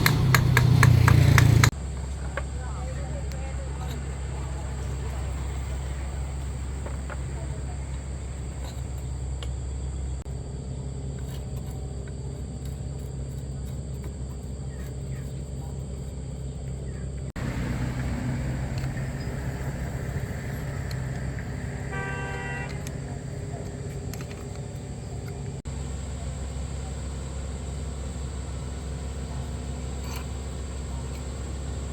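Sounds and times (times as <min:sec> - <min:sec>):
low mechanical hum: 0:00.0 - 0:31.9
short horn toot: 0:21.9 - 0:23.0.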